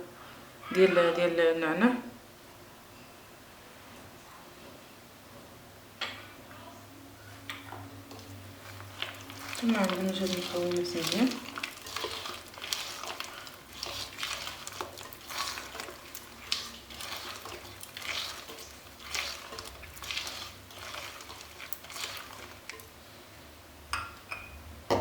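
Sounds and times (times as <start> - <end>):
utensil scraping a bowl: 8.1 - 22.9.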